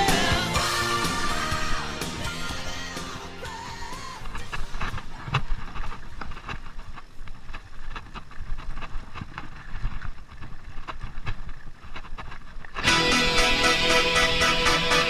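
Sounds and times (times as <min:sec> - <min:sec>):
music: 0:00.0 - 0:05.0, 0:12.8 - 0:15.0.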